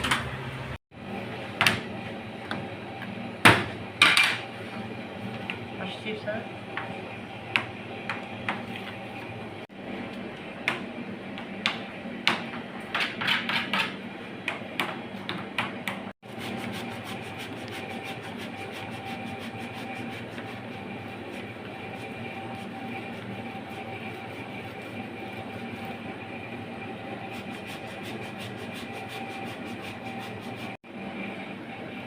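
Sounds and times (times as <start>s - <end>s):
steady hum: 15.8s - 32.0s.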